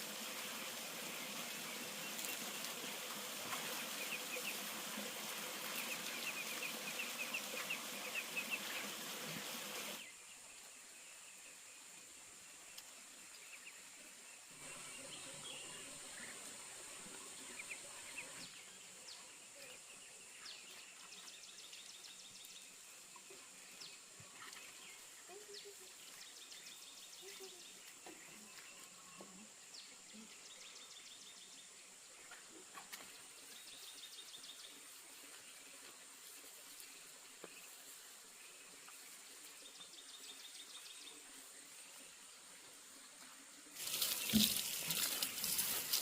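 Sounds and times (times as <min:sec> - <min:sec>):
insects: 0:10.0 - 0:46.0
small birds chirping: 0:12.7 - 0:42.0.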